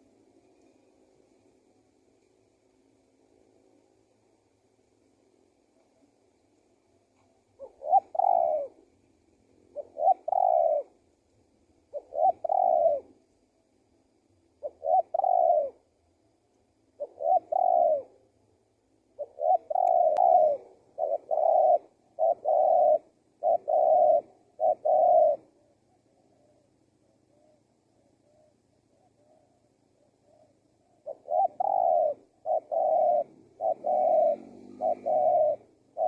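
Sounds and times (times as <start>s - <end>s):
dove cooing: 0.0s - 1.1s, 5.6s - 11.1s, 11.7s - 13.3s, 14.5s - 16.0s, 16.9s - 36.0s.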